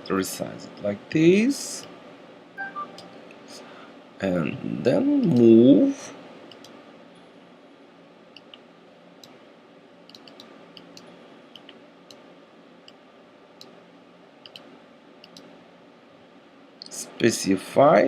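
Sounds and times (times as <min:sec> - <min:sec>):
faint steady hum: 0:00.0 - 0:18.0
computer mouse clicking: 0:06.5 - 0:06.8, 0:08.4 - 0:08.6, 0:10.1 - 0:12.2, 0:14.4 - 0:15.5.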